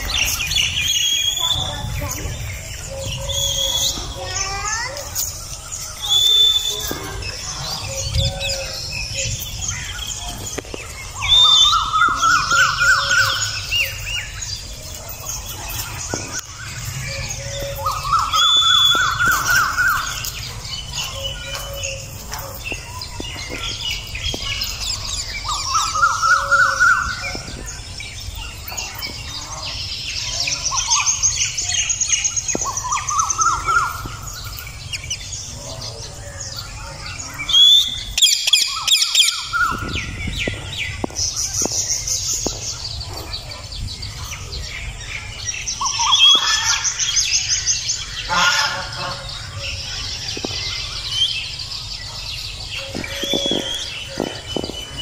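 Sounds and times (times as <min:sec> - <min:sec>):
pulsing arching bird call: 0:00.0 - 0:22.8, 0:23.5 - 0:41.0, 0:45.2 - 0:55.0
bird chirps and squawks: 0:45.6 - 0:55.0.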